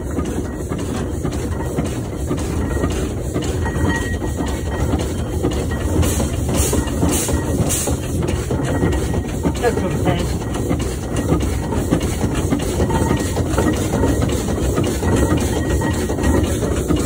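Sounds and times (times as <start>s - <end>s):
steam engine rumble and clatter: 0.0s - 17.0s
steam hissing beats: 0.0s - 17.0s.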